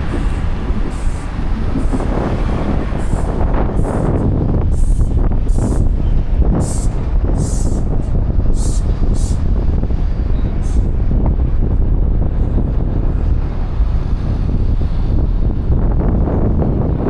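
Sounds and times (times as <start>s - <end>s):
city traffic rumble: 0.0s - 17.0s
wind on microphone: 0.0s - 17.0s.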